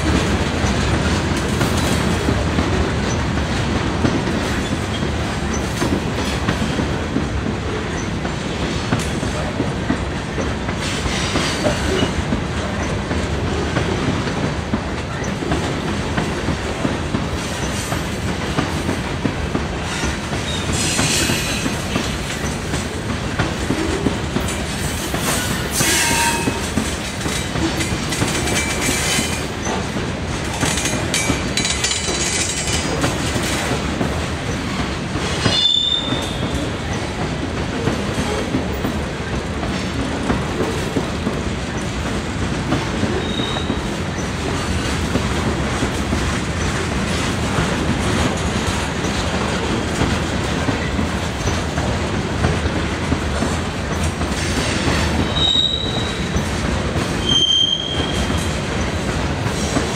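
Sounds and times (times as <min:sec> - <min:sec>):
freight train wheels clacking on rails: 0:00.0 - 0:59.9
high-pitched wheel squeals: 0:43.2 - 0:43.8, 0:55.3 - 0:56.3, 0:57.2 - 0:58.4.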